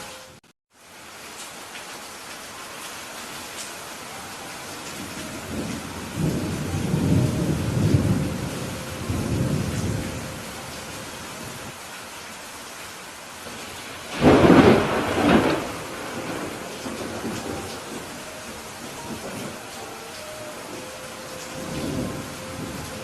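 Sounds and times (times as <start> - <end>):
steady rain hissing: 0.0 - 23.0
thunder rumbling: 4.9 - 11.7, 13.4 - 23.0
sharp thunderclap: 14.1 - 18.1.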